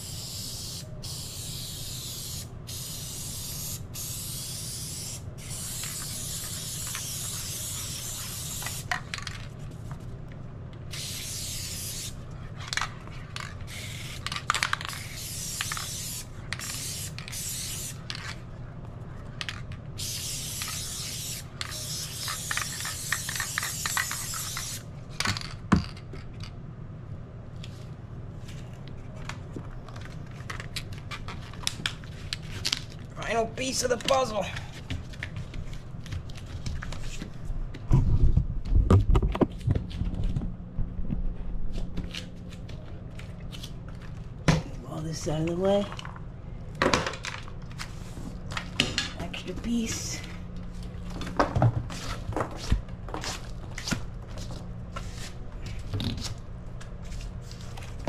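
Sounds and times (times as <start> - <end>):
aerosol spray can hissing: 0.0 - 8.9, 10.9 - 12.2, 14.9 - 18.0, 20.0 - 24.8.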